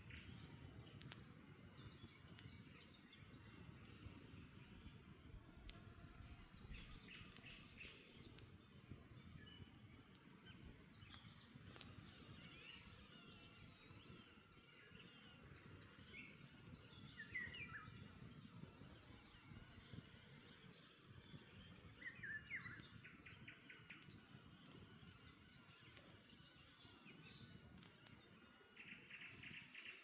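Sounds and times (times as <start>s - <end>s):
campfire crackling: 0.1s - 30.0s
birds chirping: 10.5s - 30.0s.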